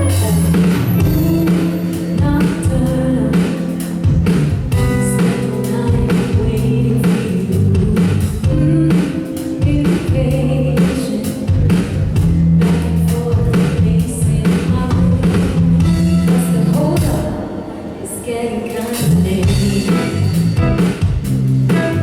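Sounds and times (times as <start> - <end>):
person singing: 0.0 - 12.0, 15.9 - 20.9
drum kit beat: 0.0 - 17.4, 19.0 - 22.0
live band playing: 0.0 - 18.1, 18.7 - 22.0
guitar: 0.0 - 22.0.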